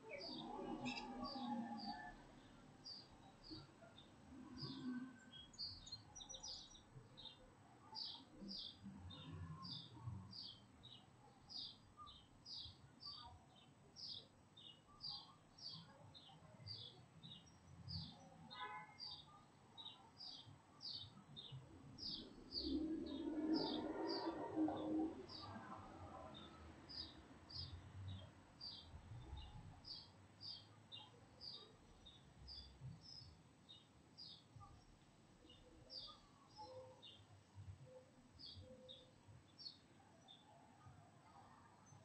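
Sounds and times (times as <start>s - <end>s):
bird chirping: 0.0s - 40.9s
low traffic rumble: 21.7s - 30.6s
car driving past: 22.6s - 26.6s.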